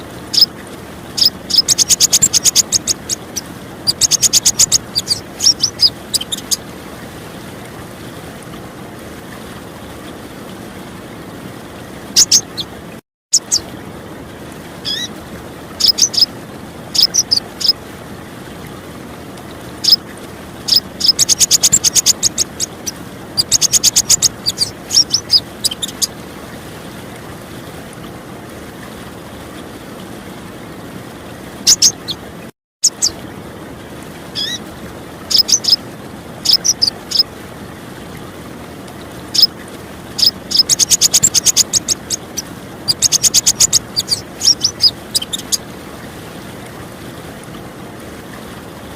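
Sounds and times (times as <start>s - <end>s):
trickle of running water: 0.0s - 48.9s
bird chips and twittering trills: 0.3s - 0.5s, 1.2s - 6.6s, 12.2s - 12.7s, 13.3s - 13.7s, 14.8s - 15.1s, 15.8s - 16.3s, 16.9s - 17.8s, 20.7s - 26.1s, 31.7s - 32.2s, 32.8s - 33.2s, 34.4s - 34.6s, 35.3s - 35.8s, 36.4s - 37.3s, 40.2s - 45.6s.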